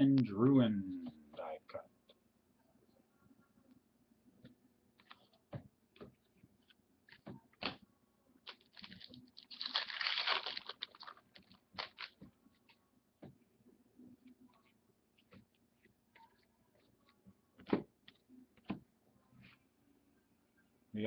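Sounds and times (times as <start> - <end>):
foil wrappers rustling: 8.5 - 12.2.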